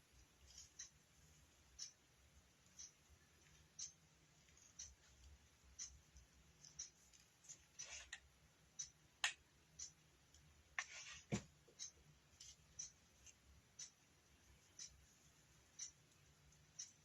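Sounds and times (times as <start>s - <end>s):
faint clicks and rustles: 0.0s - 8.3s.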